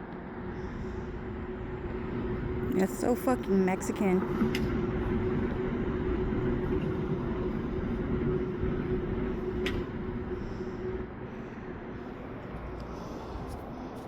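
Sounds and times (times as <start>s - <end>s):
machine hum with held tone: 0.0s - 14.0s.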